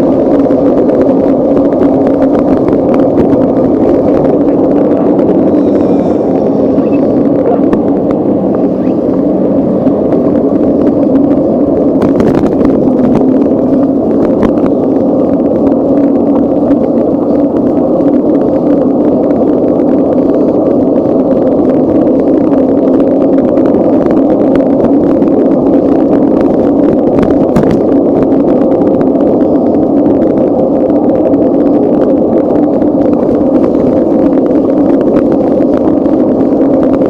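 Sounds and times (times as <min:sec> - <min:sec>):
low hum: 0:00.0 - 0:37.0
wind and road noise: 0:00.0 - 0:37.0.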